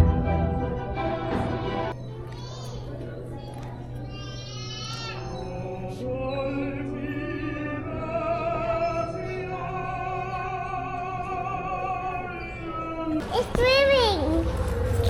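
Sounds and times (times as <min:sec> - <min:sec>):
operatic singing with vibrato: 0:05.1 - 0:15.0.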